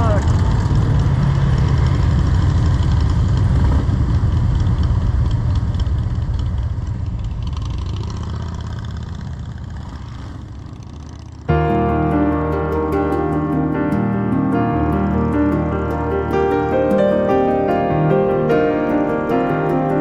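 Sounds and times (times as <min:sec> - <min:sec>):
motorcycle engine running: 0:00.2 - 0:11.5.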